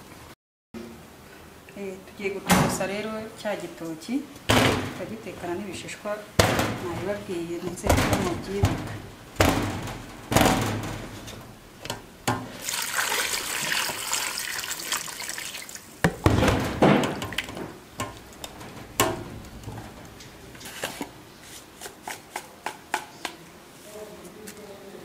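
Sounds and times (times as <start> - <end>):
water splashing in a sink: 12.5 - 16.0.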